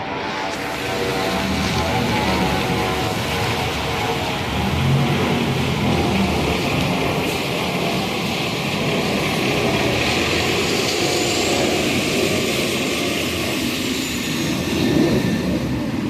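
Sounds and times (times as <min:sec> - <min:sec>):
passing vehicle roar: 0:00.0 - 0:16.0.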